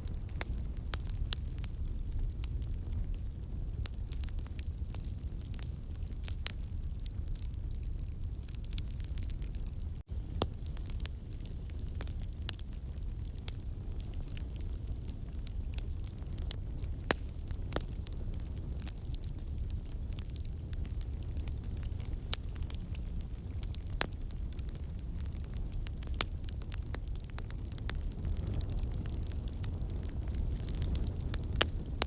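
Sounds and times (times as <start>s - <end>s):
fire crackling: 0.0s - 32.0s
sharp pops of fire: 8.6s - 32.0s.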